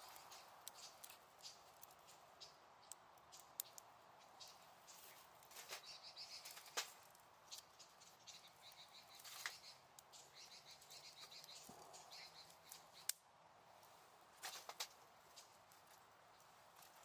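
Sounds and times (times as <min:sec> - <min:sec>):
campfire crackling: 0:00.0 - 0:17.0
fire pops: 0:05.4 - 0:07.7, 0:14.4 - 0:15.5.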